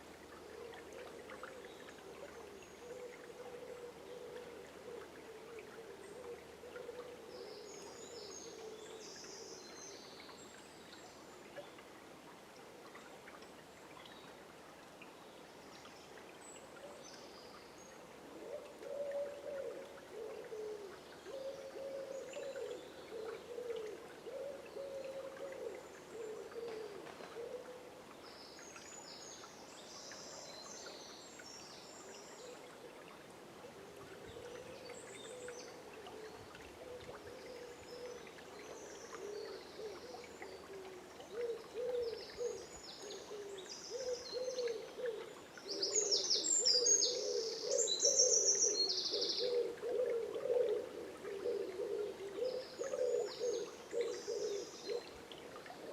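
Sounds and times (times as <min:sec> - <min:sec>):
songbird chirps and trills: 0:15.0 - 0:55.9
low wavering bird calls: 0:34.2 - 0:55.9.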